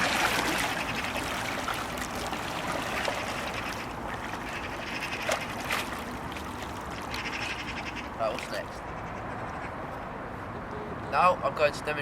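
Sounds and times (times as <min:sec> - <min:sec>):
water trickling and dripping: 0:00.0 - 0:08.7
paddle blade splashing: 0:00.0 - 0:09.7.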